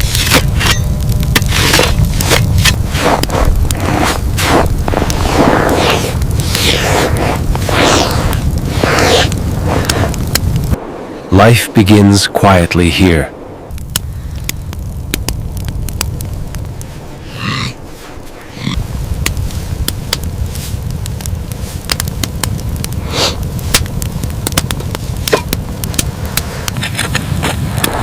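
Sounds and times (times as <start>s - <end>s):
wood fire crackling and popping: 0.0s - 12.3s, 13.3s - 28.0s.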